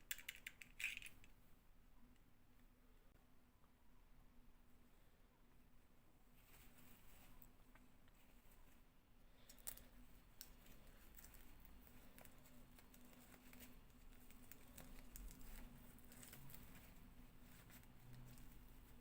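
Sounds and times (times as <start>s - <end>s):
plastic toy pieces clicking: 0.0s - 1.3s
low steady hum: 0.0s - 19.0s.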